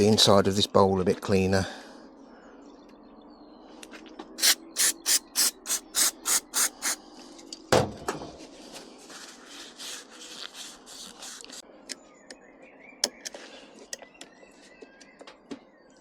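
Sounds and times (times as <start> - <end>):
quick scrubbing strokes: 4.4 - 7.0, 9.0 - 11.6.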